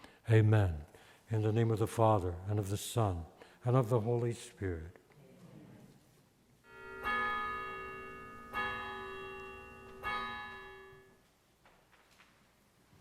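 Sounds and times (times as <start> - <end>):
bell ringing: 6.7 - 11.2.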